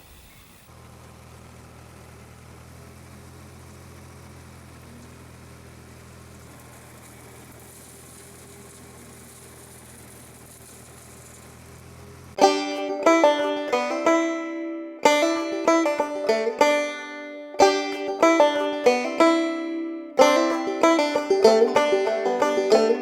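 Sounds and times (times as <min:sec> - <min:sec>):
tractor engine running: 0:00.0 - 0:23.0
banjo music: 0:12.4 - 0:23.0.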